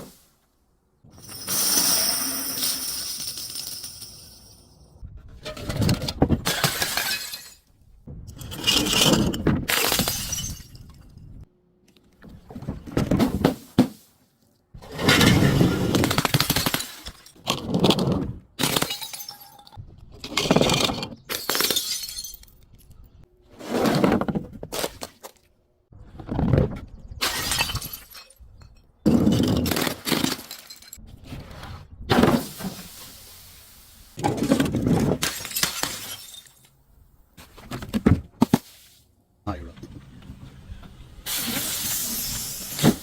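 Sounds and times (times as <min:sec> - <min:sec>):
glass smashing: 0:01.2 - 0:04.6, 0:06.5 - 0:07.7, 0:21.3 - 0:22.6, 0:35.2 - 0:36.7.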